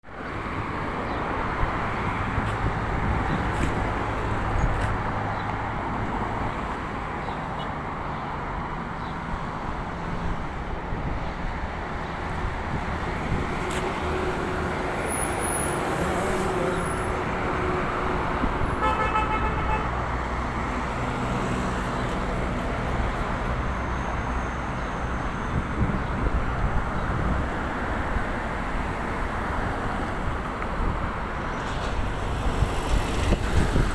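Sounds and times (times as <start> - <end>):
road traffic passing: 0.1 - 33.9
car horn toot: 18.7 - 19.9.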